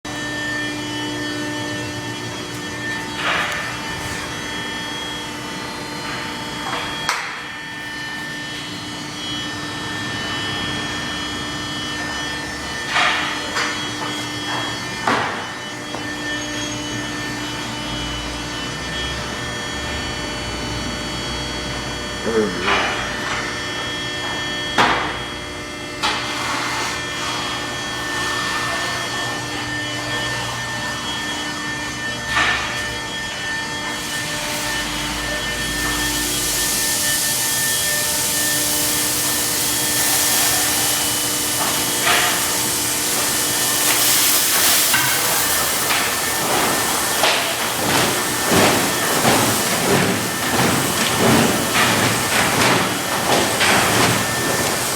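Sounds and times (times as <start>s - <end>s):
car wash machinery humming: 0.0s - 54.9s
whining motors: 0.1s - 54.9s.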